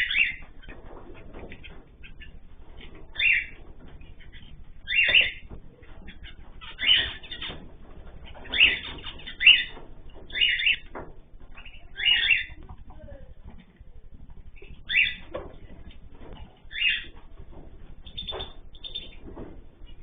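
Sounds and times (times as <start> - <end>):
faint bird chirps: 0.0 - 0.8, 3.1 - 7.6, 8.2 - 13.0, 14.5 - 20.0
loud harsh bird calls: 0.0 - 2.3, 3.1 - 12.6, 14.6 - 15.3, 16.7 - 19.4
rustling: 0.0 - 20.0.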